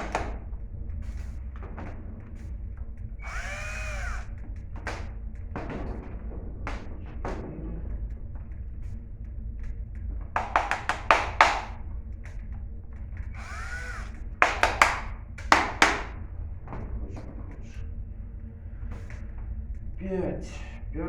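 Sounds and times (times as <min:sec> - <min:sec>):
screwdriver clicks and knocks: 0:03.2 - 0:05.1, 0:10.4 - 0:11.8, 0:13.4 - 0:16.2.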